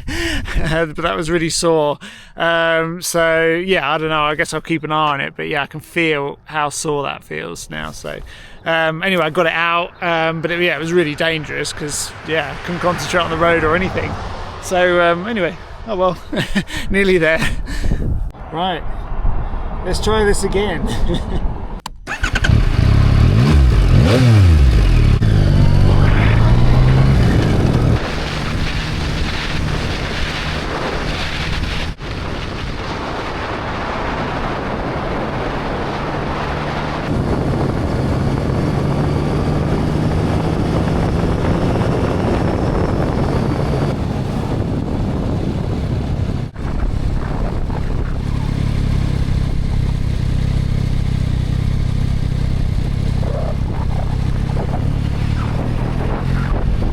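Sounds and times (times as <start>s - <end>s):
motorcycle engine accelerating: 21.9s - 32.1s, 33.8s - 56.9s.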